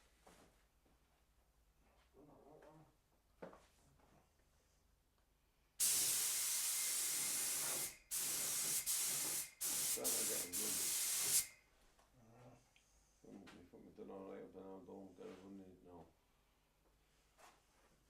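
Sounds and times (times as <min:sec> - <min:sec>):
paint spray gun hissing: 0:05.8 - 0:11.5.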